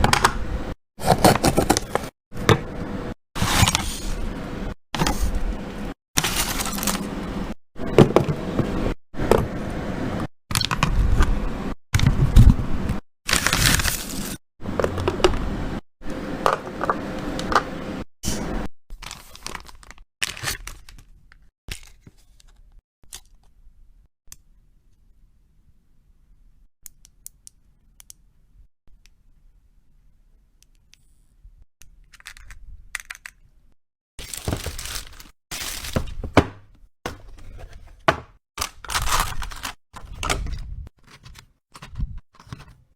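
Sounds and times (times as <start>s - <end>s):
packaging tearing and crinkling: 6.2s - 7.1s, 13.3s - 14.4s, 34.2s - 36.4s, 38.6s - 39.8s
small items knocking: 34.2s - 39.4s.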